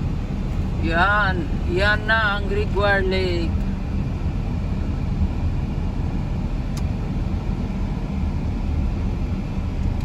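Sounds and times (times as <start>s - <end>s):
car engine rumble: 0.0s - 10.0s.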